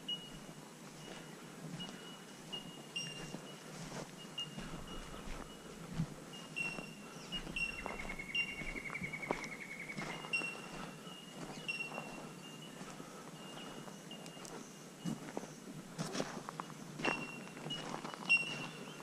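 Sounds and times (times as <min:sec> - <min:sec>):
footsteps on dirt track: 0:00.0 - 0:19.0
bird rapid trill: 0:06.5 - 0:12.8, 0:17.1 - 0:19.0.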